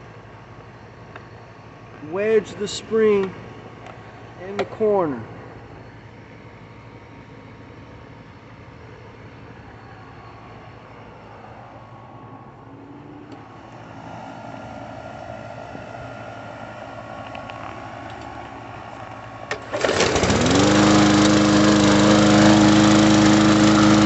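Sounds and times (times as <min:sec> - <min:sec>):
lawn mower engine starting and running: 0:13.0 - 0:24.0.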